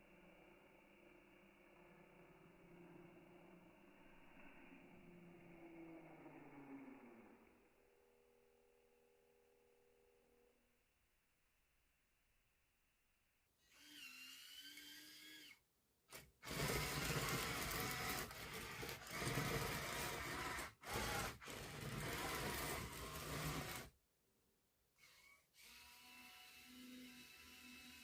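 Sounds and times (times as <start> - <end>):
small electric gear motors whining: 13.6 - 23.9, 25.0 - 28.0.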